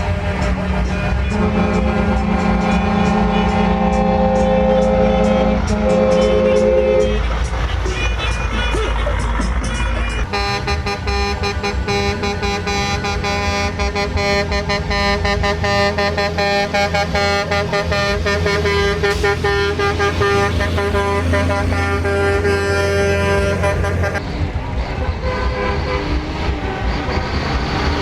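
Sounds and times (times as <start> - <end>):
truck air horn chord: 0.0 - 7.4, 10.3 - 24.2.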